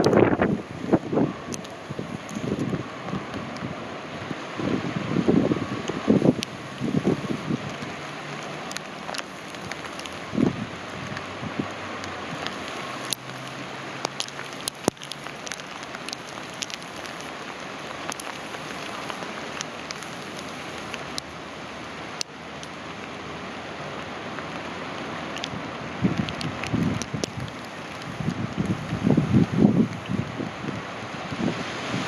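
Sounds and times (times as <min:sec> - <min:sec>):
wind buffeting microphone: 0:00.0 - 0:08.4, 0:09.1 - 0:13.3, 0:25.4 - 0:32.0
heavy rain and hail: 0:00.0 - 0:32.0
hailstones ticking: 0:01.5 - 0:03.7, 0:05.8 - 0:11.3, 0:12.0 - 0:21.4, 0:25.3 - 0:30.8.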